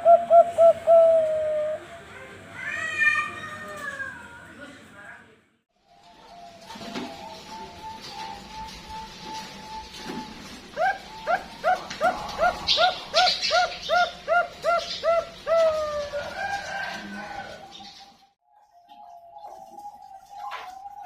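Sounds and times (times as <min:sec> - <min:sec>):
dove cooing: 0:00.0 - 0:02.5, 0:05.9 - 0:18.1.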